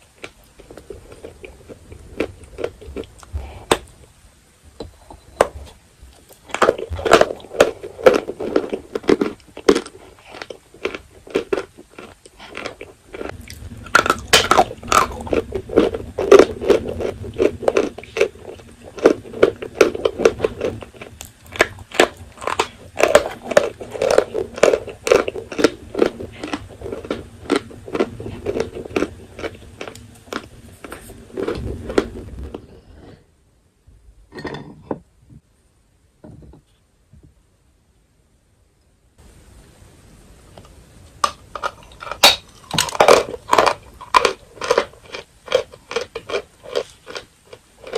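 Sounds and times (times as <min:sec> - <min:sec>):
chalk being chewed: 0:06.9 - 0:32.6, 0:42.7 - 0:47.9.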